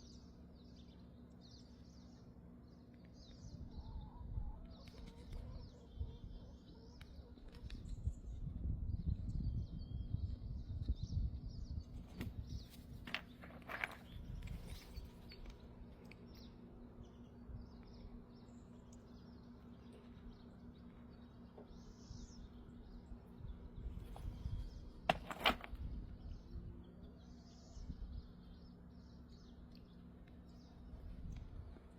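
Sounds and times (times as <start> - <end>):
faint bird chirps: 0.0 - 12.8, 26.0 - 31.1
low steady rumble: 0.0 - 31.9.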